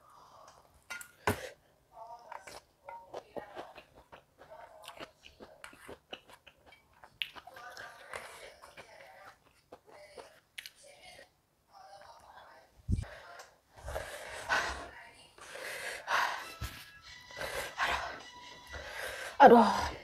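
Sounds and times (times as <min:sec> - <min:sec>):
person chewing: 0:02.3 - 0:10.8.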